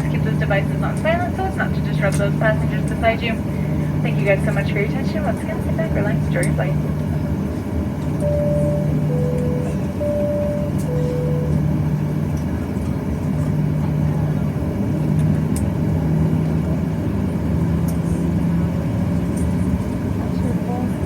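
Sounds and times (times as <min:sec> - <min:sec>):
aircraft cabin drone: 0:00.0 - 0:21.0
two-note alternating tone: 0:08.2 - 0:12.0.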